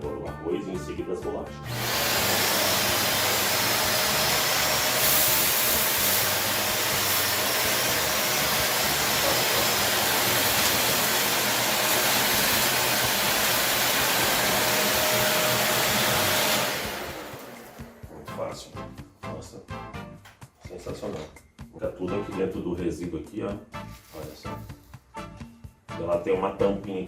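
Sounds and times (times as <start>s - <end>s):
upright vacuum cleaner running: 1.7s - 18.2s.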